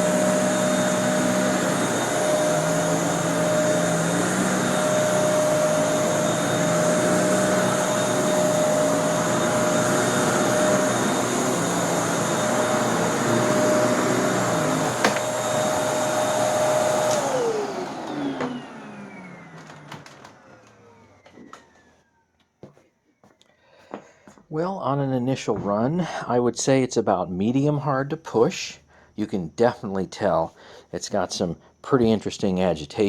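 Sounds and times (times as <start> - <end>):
vacuum cleaner motor whine: 0.0 - 22.3.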